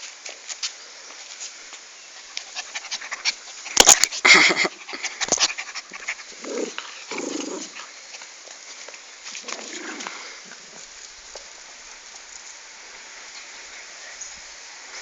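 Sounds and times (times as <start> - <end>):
dogs panting: 2.1 - 11.1.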